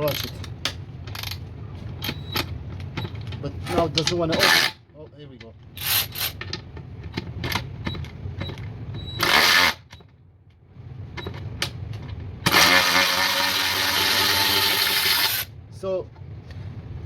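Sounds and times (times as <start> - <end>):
tool handling clicks and knocks: 0.0 - 4.7, 5.4 - 8.7
electric ratchet motor whirring: 9.2 - 9.9, 12.5 - 15.5.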